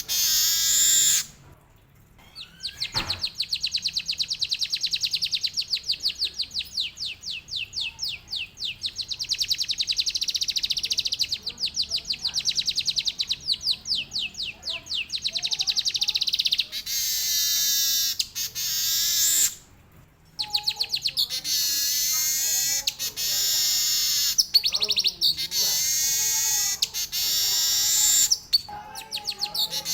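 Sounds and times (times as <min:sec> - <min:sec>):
buzzing wheezy bird trill: 0:00.0 - 0:01.3, 0:16.6 - 0:19.6, 0:20.4 - 0:29.9
bird singing rolling song: 0:02.2 - 0:19.6, 0:20.4 - 0:29.9.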